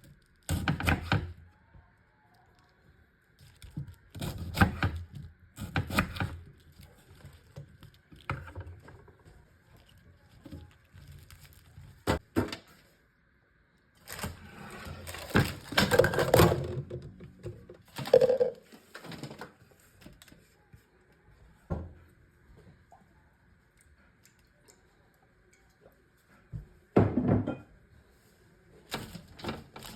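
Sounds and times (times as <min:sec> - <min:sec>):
knocks and clunks of objects: 0:11.5 - 0:12.7, 0:15.0 - 0:19.6, 0:27.0 - 0:27.7.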